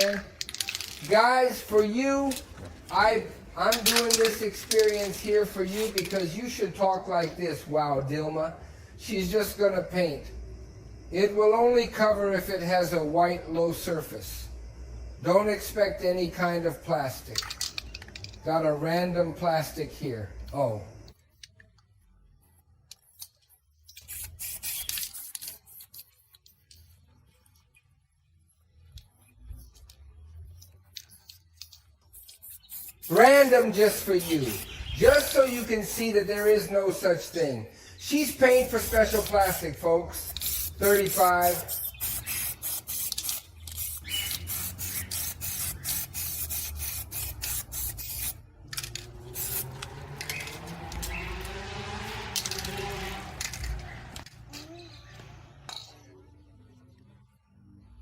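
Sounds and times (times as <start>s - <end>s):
rasping hiss: 32.2s - 37.1s, 37.7s - 48.4s.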